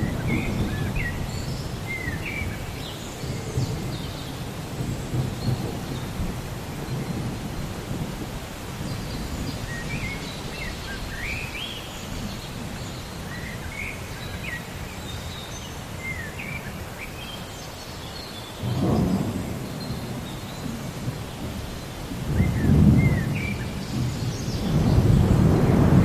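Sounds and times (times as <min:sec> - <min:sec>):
rolling thunder: 0:00.0 - 0:11.2, 0:18.6 - 0:26.0
rain: 0:00.0 - 0:26.0.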